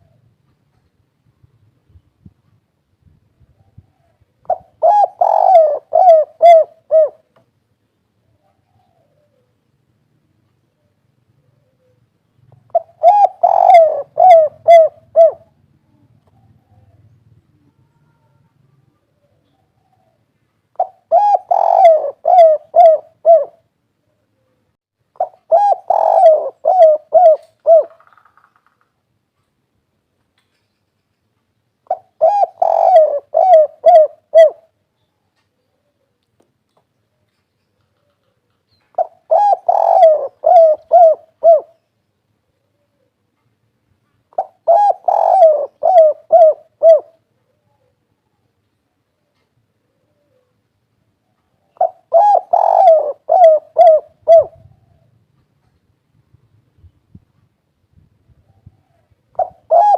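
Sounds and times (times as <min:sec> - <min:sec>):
dove cooing: 0:03.6 - 0:07.4, 0:08.2 - 0:09.6, 0:11.4 - 0:24.6, 0:25.2 - 0:28.3, 0:31.9 - 0:34.8, 0:37.9 - 0:41.8, 0:44.3 - 0:48.4, 0:49.2 - 0:55.2, 0:58.4 - 0:59.9.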